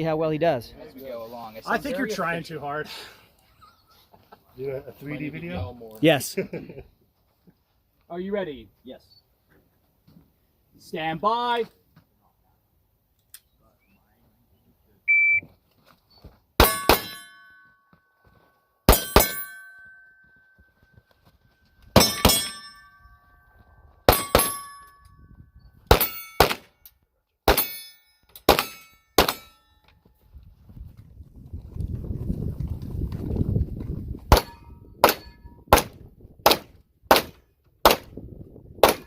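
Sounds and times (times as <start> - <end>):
shot timer beep: 15.1 - 15.4
pistol shots: 16.6 - 17.3, 24.1 - 24.7, 25.9 - 26.7, 28.5 - 29.5, 34.3 - 38.1
steel plate ringing: 16.6 - 17.8, 18.9 - 20.6, 22.0 - 25.1, 26.0 - 26.5, 27.5 - 29.9.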